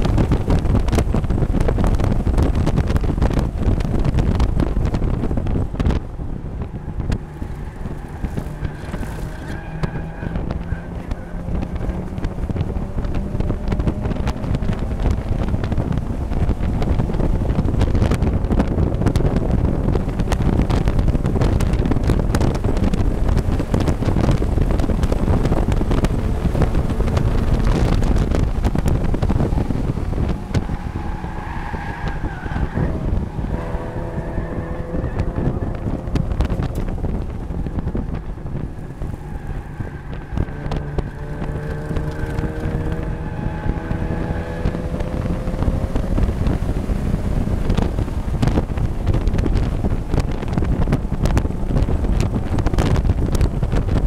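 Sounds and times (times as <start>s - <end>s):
race car engine: 0.0s - 54.0s
road noise: 0.0s - 54.0s.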